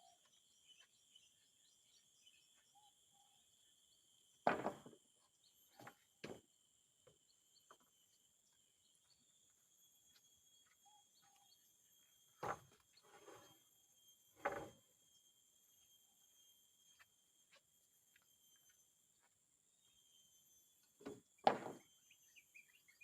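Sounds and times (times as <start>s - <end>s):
high insect drone: 13.6s - 20.9s.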